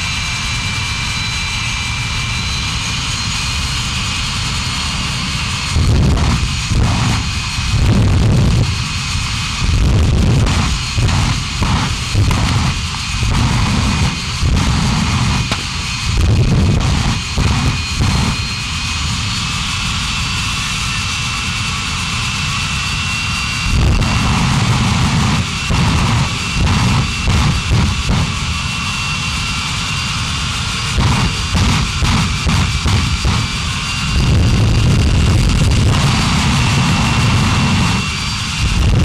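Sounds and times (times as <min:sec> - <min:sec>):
truck engine revving: 0:05.7 - 0:09.0, 0:09.7 - 0:18.4, 0:23.7 - 0:28.6, 0:30.9 - 0:38.9.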